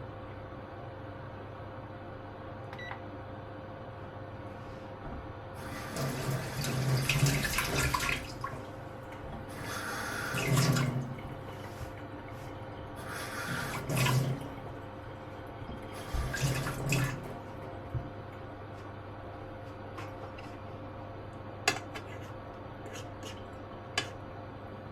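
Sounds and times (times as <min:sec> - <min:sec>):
tap water splashing into sink: 0:05.9 - 0:12.0, 0:13.4 - 0:14.8, 0:15.7 - 0:18.4.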